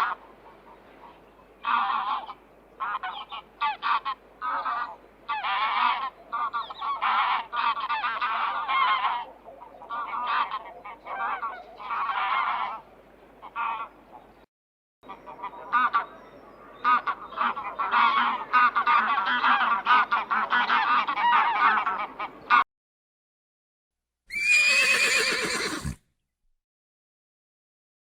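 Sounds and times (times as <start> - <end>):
waterfowl nasal calls: 0.0 - 12.8, 16.8 - 22.6.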